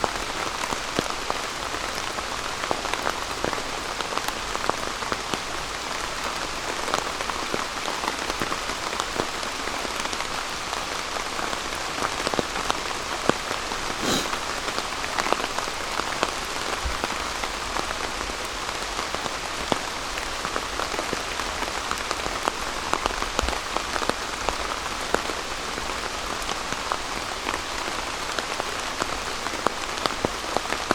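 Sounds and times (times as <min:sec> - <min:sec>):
rain pattering on tarp: 0:00.0 - 0:30.9.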